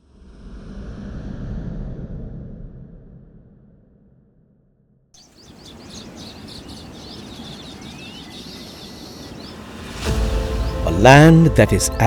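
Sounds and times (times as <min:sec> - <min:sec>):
birds chirping and calling: 0:05.2 - 0:12.0.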